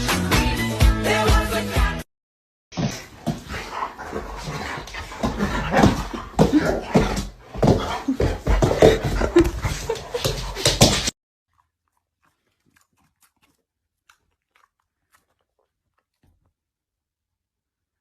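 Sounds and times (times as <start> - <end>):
dog chewing and crunching: 11.5 - 16.7.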